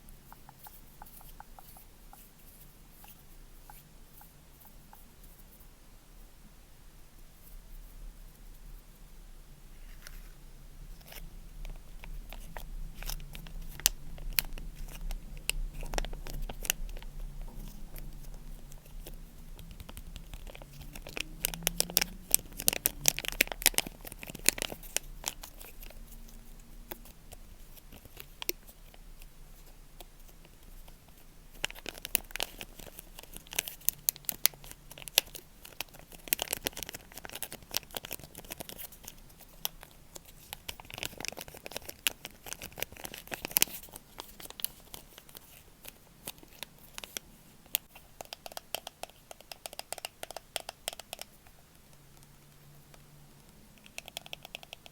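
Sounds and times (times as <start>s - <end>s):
crinkly material crumpling and tearing: 9.8s - 48.1s.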